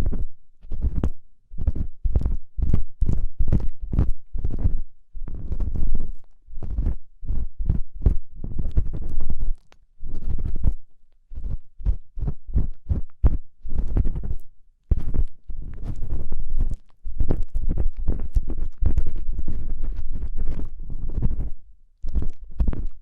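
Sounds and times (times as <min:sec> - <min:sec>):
ear pick scraping in ear: 0:11.4 - 0:22.9.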